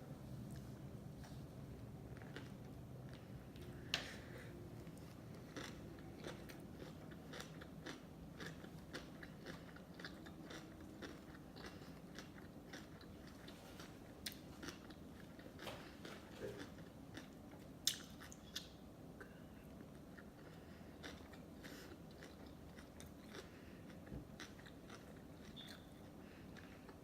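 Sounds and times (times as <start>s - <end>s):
wet chewing clicks and crunches: 4.8s - 18.8s, 19.9s - 27.0s.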